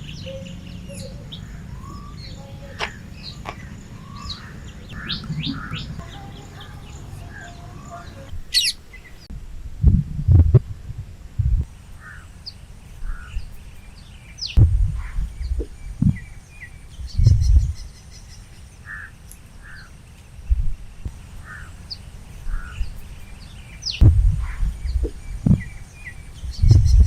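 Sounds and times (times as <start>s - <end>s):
birds calling in pairs: 0.0s - 9.3s, 11.7s - 27.0s
high bird chirps: 0.0s - 9.3s, 12.0s - 20.7s, 21.4s - 27.0s
low rumbling thumps: 3.7s - 7.1s, 9.2s - 11.7s, 14.6s - 18.0s, 20.4s - 21.2s, 24.0s - 27.0s.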